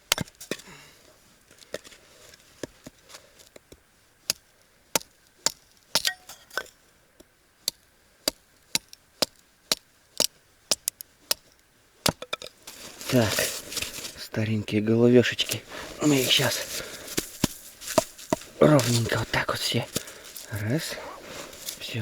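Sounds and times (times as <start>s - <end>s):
hatchet chopping firewood: 0.0s - 0.7s, 3.5s - 6.6s, 7.6s - 14.2s, 15.5s - 21.9s.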